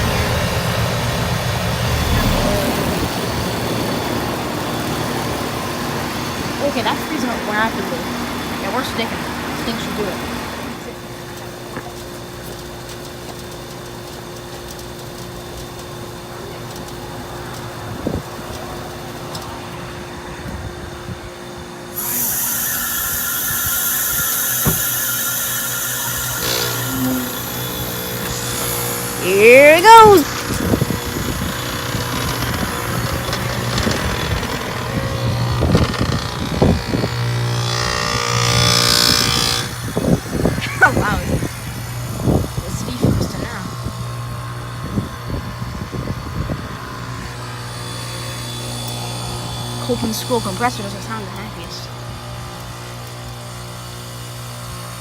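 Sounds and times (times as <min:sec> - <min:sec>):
compressor hum and fan: 0:00.0 - 0:55.0
loud refrigerant hiss: 0:00.0 - 0:55.0.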